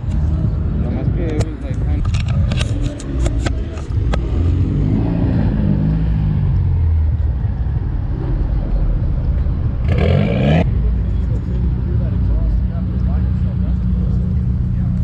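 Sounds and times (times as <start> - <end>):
car engine running close by: 0.0 - 15.0.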